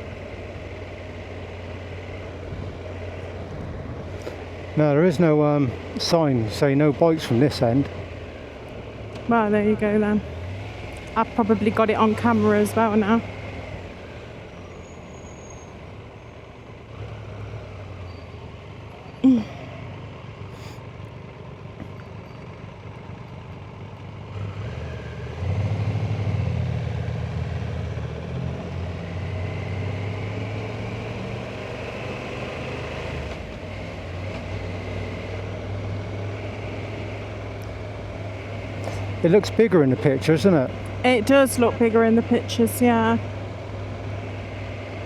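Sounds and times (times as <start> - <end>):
motorcycle engine running: 0.0 - 14.6, 15.8 - 25.4.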